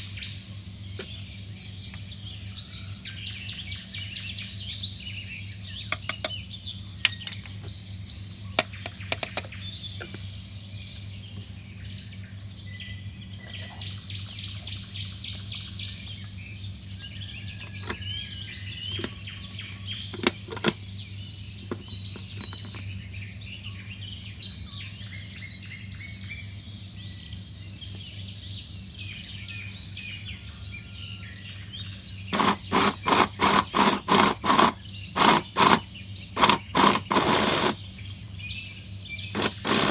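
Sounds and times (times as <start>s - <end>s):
small birds chirping: 0.0s - 39.9s
scattered clicks: 32.3s - 35.8s, 36.4s - 37.8s.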